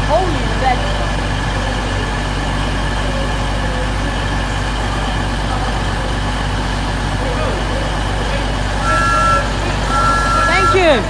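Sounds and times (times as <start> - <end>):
diesel train engine idling: 0.0 - 11.0
faint steady whine: 8.8 - 11.0.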